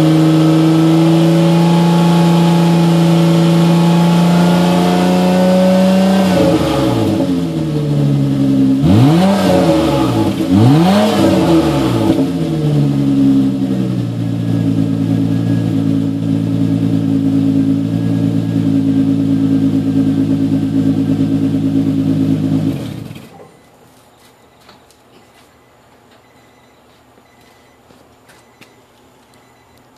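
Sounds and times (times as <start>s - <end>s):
car engine revving and idling: 0.0s - 23.7s.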